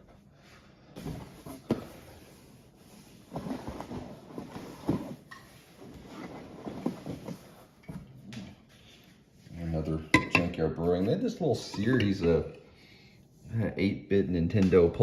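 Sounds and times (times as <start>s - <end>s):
beer cans knocking: 10.1s - 10.6s.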